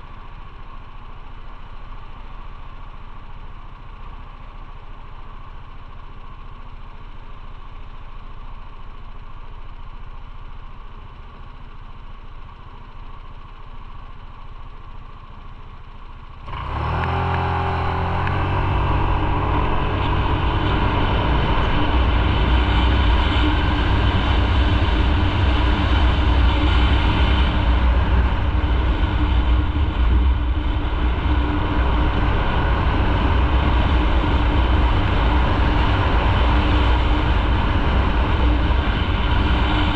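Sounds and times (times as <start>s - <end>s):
motorcycle accelerating: 0.0s - 39.9s
motorcycle engine idling: 0.0s - 39.9s
wind noise: 17.2s - 39.9s.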